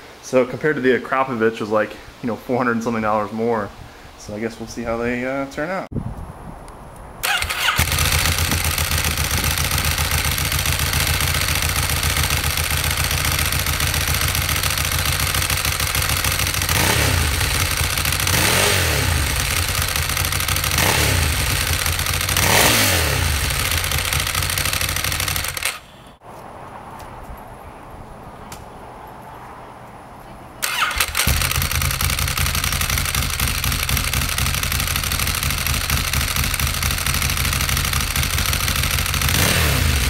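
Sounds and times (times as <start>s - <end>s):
motorcycle engine idling and revving: 7.2s - 26.2s, 30.6s - 40.0s.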